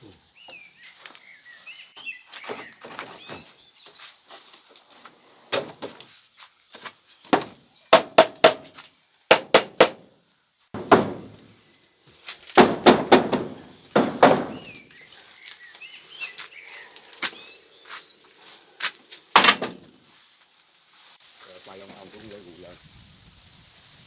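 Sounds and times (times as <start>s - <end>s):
faint bird chirping: 0.0s - 12.2s, 13.4s - 24.0s
sharp knocks and thuds: 2.4s - 3.6s, 5.5s - 6.1s, 6.8s - 10.1s, 10.8s - 11.6s, 12.5s - 14.8s, 19.4s - 20.0s.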